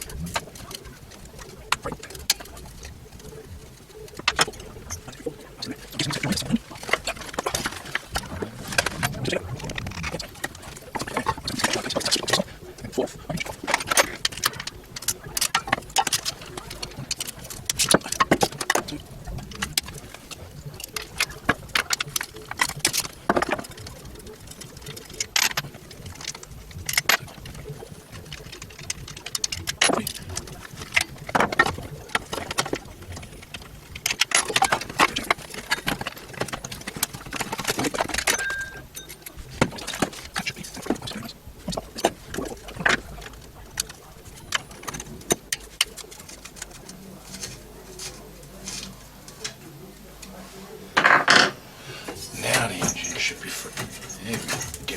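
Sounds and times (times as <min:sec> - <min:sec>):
hand tools clinking on metal: 0:38.0 - 0:40.2, 0:52.4 - 0:54.9.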